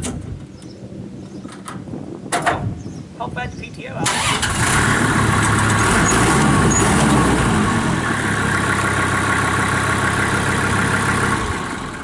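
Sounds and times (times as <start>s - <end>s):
tractor diesel engine running: 4.0s - 12.0s.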